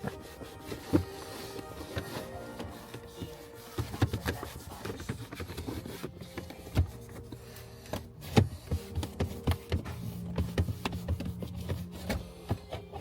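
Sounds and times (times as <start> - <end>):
cloth wiping plastic trim: 0.0 - 7.3.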